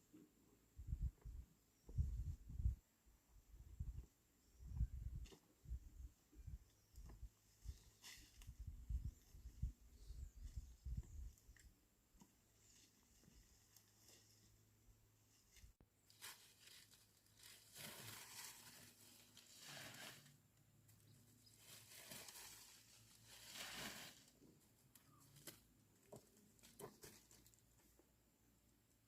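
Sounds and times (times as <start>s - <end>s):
rustling and tearing: 15.6s - 20.4s, 21.5s - 24.4s.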